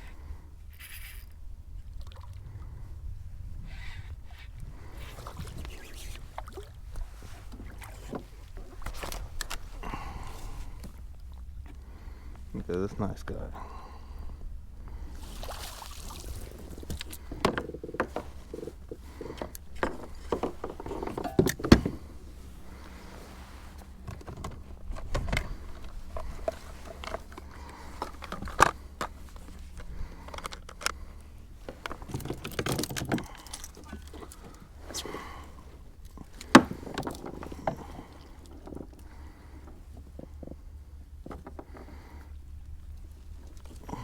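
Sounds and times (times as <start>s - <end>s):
fishing gear clicks and rattles: 0.7s - 1.4s, 3.7s - 11.8s, 16.1s - 23.1s, 23.7s - 44.0s
steady low rumble: 1.4s - 5.4s.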